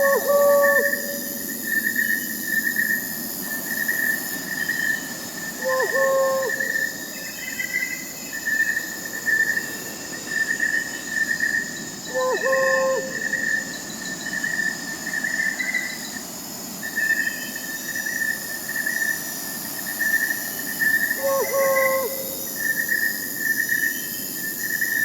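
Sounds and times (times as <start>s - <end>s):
owl hooting: 0.0s - 1.6s, 5.6s - 7.0s, 12.1s - 13.7s, 21.1s - 22.5s
crickets chirping: 0.0s - 25.0s.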